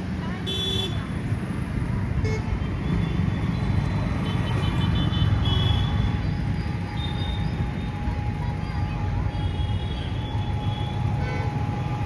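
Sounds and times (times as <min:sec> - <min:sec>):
motor vehicle rumble: 0:00.0 - 0:12.0.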